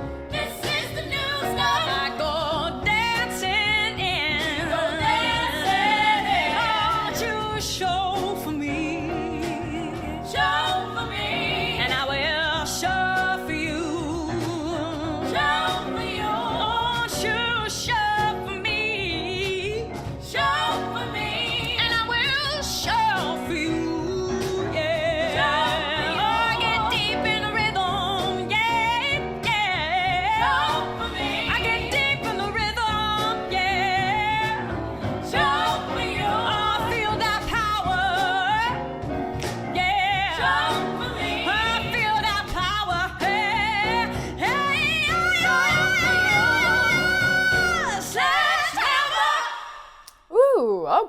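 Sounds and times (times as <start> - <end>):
band playing: 44.4 - 48.3.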